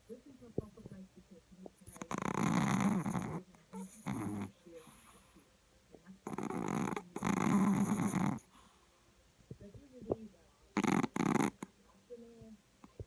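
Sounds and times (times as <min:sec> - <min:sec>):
small dog snoring: 0:01.7 - 0:05.4, 0:06.2 - 0:08.8, 0:10.7 - 0:11.7.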